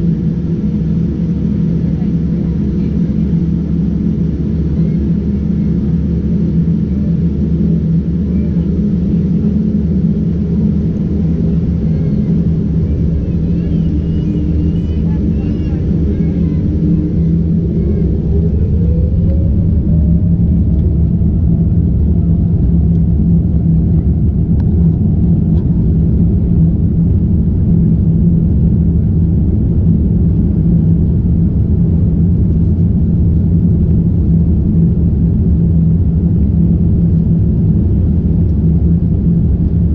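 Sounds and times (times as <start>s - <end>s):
jet engines at takeoff thrust: 0.0s - 39.9s.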